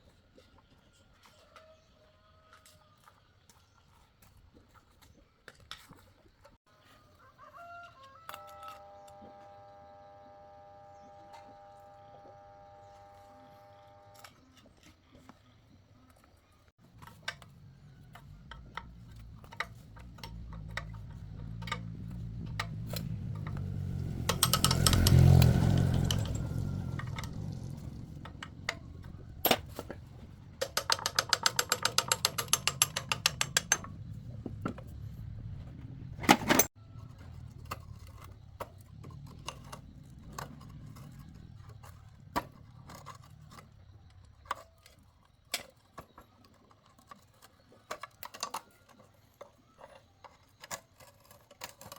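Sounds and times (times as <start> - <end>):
low hum: 16.8 - 43.6
metal tool clicks and knocks: 17.0 - 35.0
rapid run of clicks: 24.2 - 35.0.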